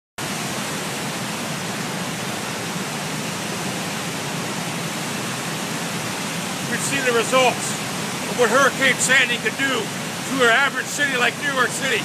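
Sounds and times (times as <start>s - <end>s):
floodwater rushing over a dam: 0.2s - 12.0s.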